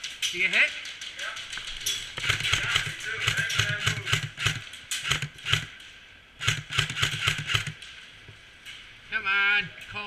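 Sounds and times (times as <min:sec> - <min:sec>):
airsoft gun firing bursts: 0:02.2 - 0:05.8, 0:06.4 - 0:07.8.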